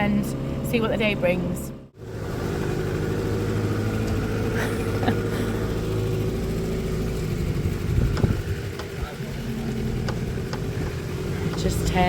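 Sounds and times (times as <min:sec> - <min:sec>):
boat engine running: 0:00.0 - 0:12.0
low thump: 0:08.0 - 0:08.9.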